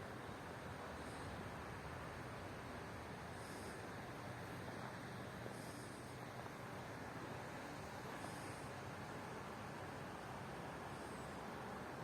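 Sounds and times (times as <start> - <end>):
wind hiss on microphone: 0.0 - 12.0.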